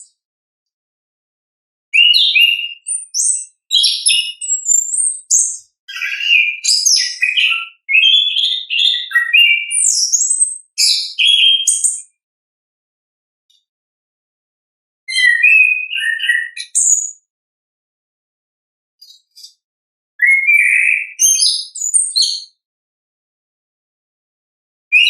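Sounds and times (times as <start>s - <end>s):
thrush singing whistled song: 2.0s - 12.2s, 15.1s - 17.3s, 20.2s - 22.6s.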